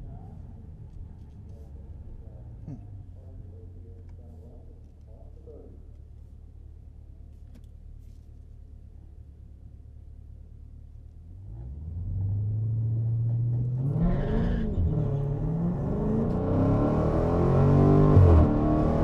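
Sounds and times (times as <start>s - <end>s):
car engine accelerating hard: 11.3s - 19.0s.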